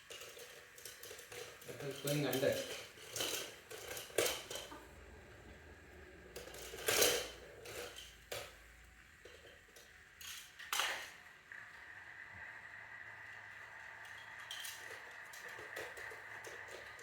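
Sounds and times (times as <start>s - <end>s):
small hard objects clattering: 0.0s - 4.8s.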